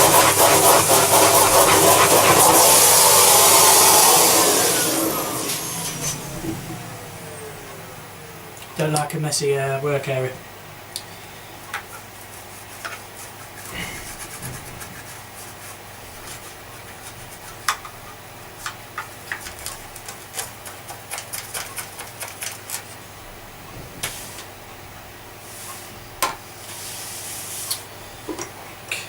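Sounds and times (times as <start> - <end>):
rubbing: 0.0 - 3.9, 11.9 - 17.7.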